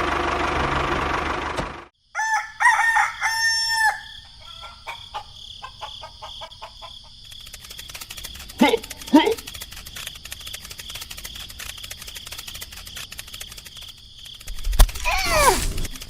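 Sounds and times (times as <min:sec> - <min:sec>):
rooster crowing: 0:02.1 - 0:07.0
scattered clicks: 0:07.2 - 0:15.1.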